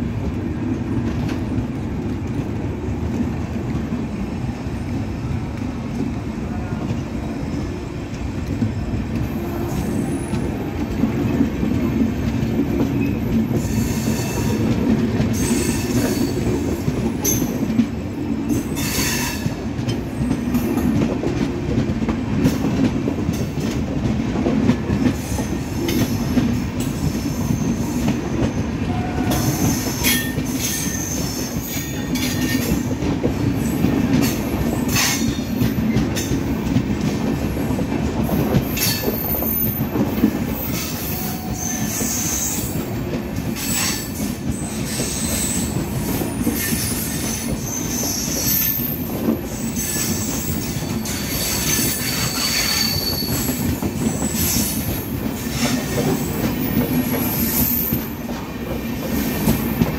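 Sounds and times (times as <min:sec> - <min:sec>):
train wheels rumbling on rail: 0:00.0 - 0:59.9
wheel squeals: 0:49.6 - 0:54.9.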